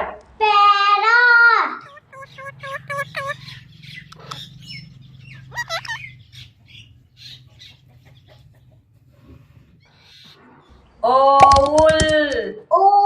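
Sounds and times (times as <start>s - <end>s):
birds calling: 1.6s - 11.4s.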